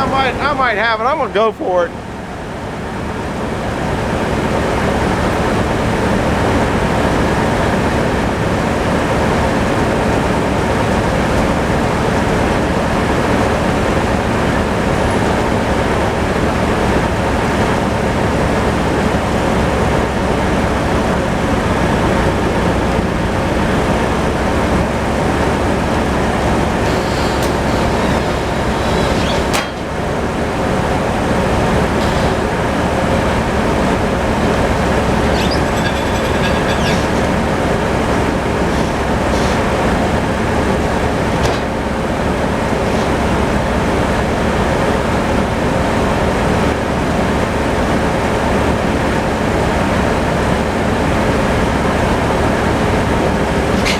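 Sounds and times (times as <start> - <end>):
tractor engine running: 0.0 - 53.9
saw cutting log: 25.9 - 30.1, 34.7 - 40.1.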